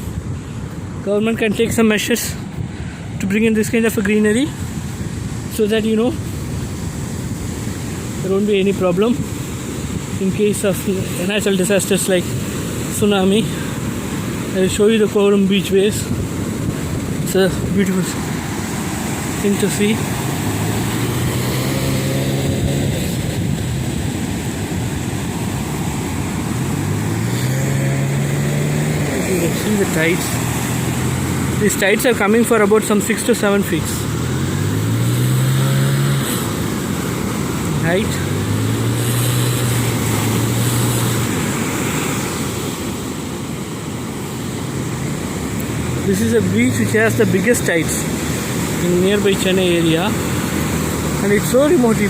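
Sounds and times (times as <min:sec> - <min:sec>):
wind rumble on microphone: 0:00.0 - 0:32.4
waves surging onto beach: 0:00.0 - 0:52.0.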